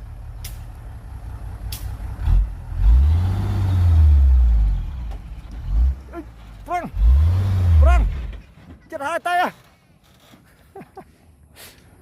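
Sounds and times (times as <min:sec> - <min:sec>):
heavy machine diesel engine revving: 0:00.4 - 0:08.4.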